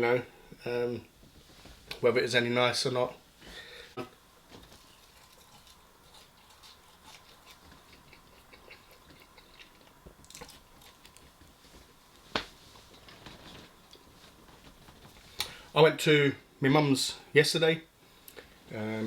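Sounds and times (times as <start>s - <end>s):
mouth clicks and crunches: 4.6s - 11.6s
person chewing food: 4.6s - 12.0s.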